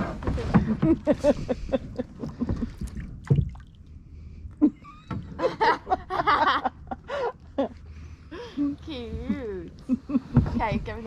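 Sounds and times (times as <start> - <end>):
paddle splashing in water: 0.0 - 3.8.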